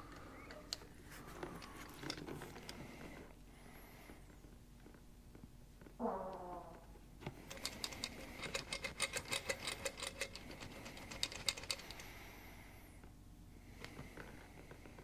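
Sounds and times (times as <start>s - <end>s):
small metallic clicks and rattles: 0.0s - 2.8s, 7.2s - 12.2s.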